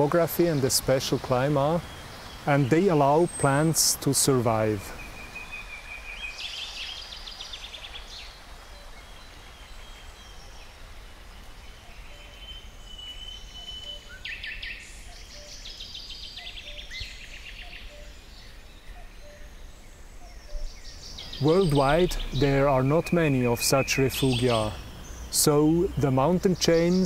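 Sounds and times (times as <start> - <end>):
background hiss: 0.0 - 27.0
soft low bird notes: 11.4 - 27.0
bird trills: 11.6 - 27.0.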